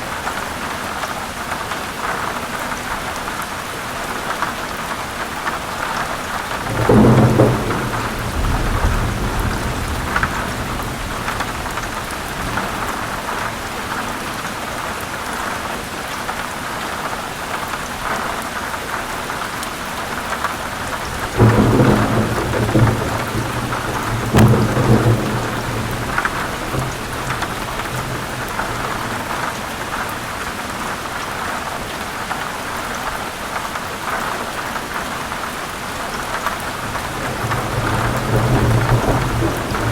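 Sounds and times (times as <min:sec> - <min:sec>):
heavy rain on leaves: 0:00.0 - 0:39.9
thunder rumbling: 0:06.4 - 0:14.0, 0:20.8 - 0:30.4, 0:36.6 - 0:39.9.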